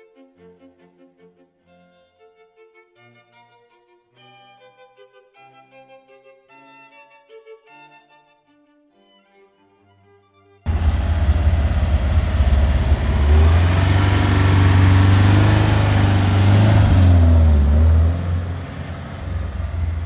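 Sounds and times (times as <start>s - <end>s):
car engine accelerating: 10.7s - 20.0s.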